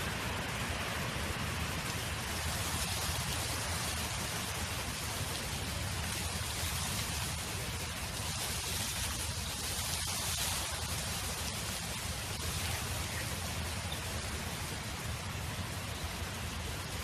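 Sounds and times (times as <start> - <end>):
wind blowing: 0.0 - 17.0.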